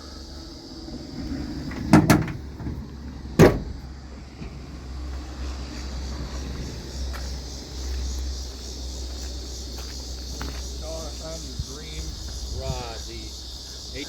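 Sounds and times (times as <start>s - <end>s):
steady low rumble: 0.0s - 14.0s
sharp knocks: 3.4s - 3.8s.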